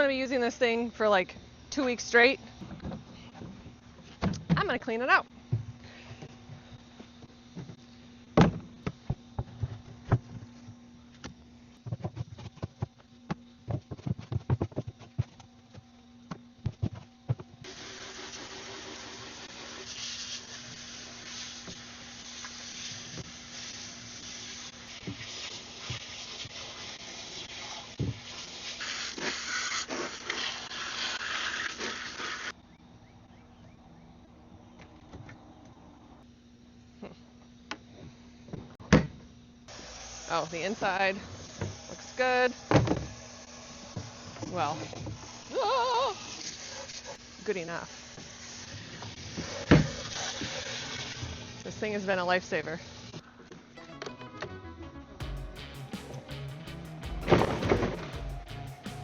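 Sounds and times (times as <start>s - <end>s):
water spray rinsing: 17.7s - 32.5s.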